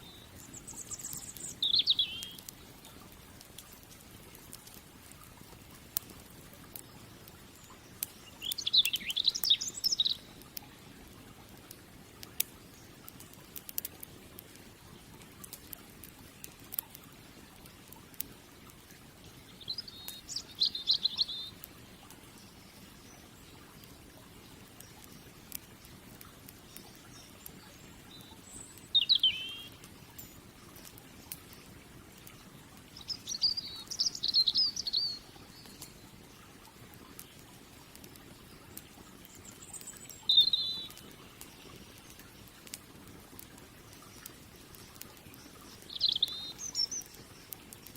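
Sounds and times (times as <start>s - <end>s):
songbird warbling: 0.0s - 2.5s, 7.6s - 10.4s, 19.6s - 21.5s, 28.1s - 30.4s, 33.0s - 35.8s, 39.4s - 41.7s, 45.4s - 47.5s
wood fire crackling and popping: 0.0s - 47.9s.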